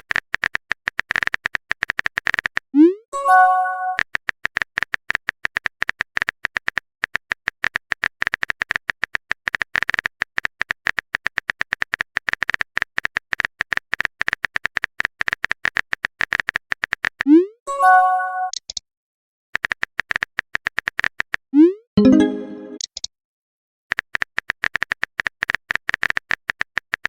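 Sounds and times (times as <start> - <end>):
keyboard typing clicks: 22.0 - 23.1.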